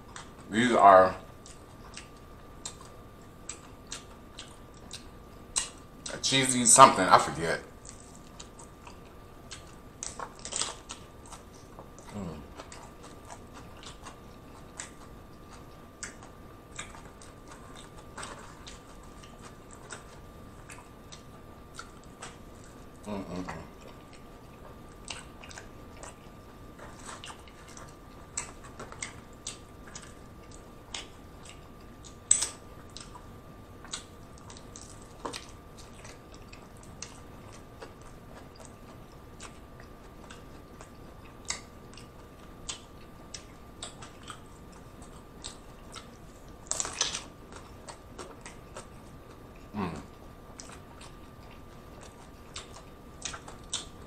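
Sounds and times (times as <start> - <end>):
person chewing crunchy taco: 0.0 - 6.2, 7.6 - 54.0.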